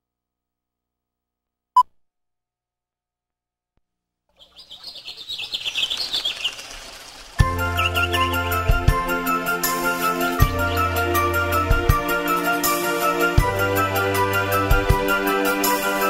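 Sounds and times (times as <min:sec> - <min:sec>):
birds chirping and twittering: 0:04.3 - 0:11.7
music: 0:07.4 - 0:16.0.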